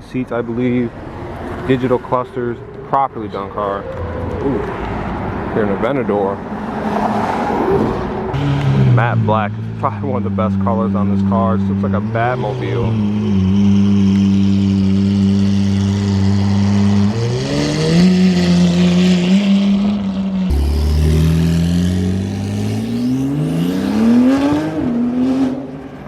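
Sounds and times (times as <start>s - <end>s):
sports car engine revving: 6.7s - 26.0s.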